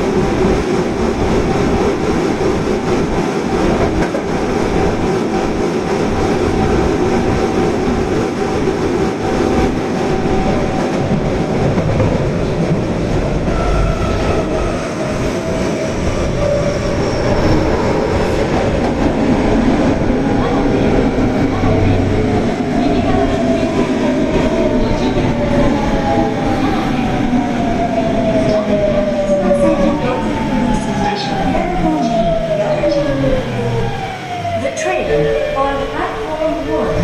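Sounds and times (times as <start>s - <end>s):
rumble of wheels on rail: 0.0s - 37.0s.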